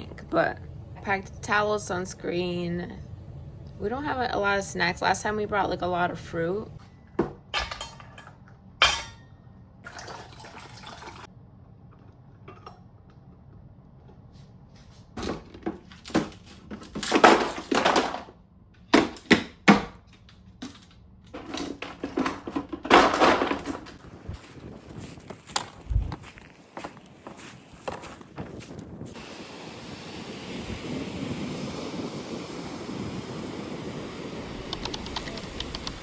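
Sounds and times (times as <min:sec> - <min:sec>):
dishes clattering: 0:07.2 - 0:09.3, 0:12.4 - 0:12.8.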